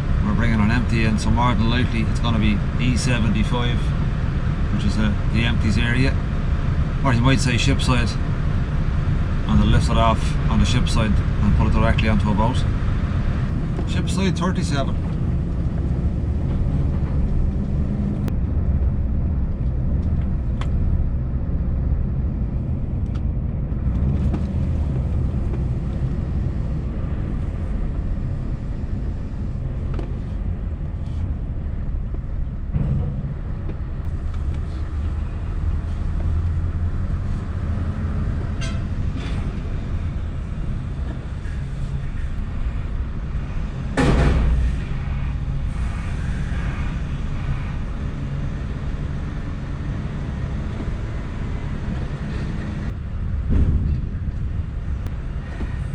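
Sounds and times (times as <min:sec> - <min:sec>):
diesel truck engine running: 0:00.0 - 0:55.9.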